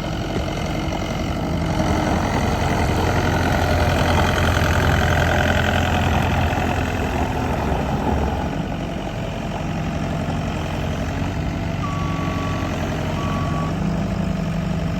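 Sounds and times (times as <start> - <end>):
loader engine idling: 0.0 - 14.9
short beeps: 11.8 - 13.9.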